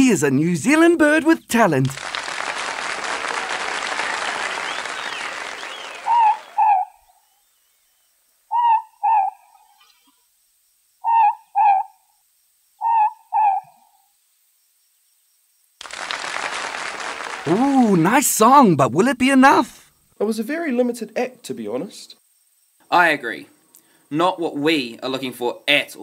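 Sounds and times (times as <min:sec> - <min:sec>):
applause: 0:01.8 - 0:06.8, 0:15.8 - 0:18.4
owl two-note hoot: 0:08.5 - 0:09.4, 0:11.0 - 0:11.9, 0:12.8 - 0:13.8.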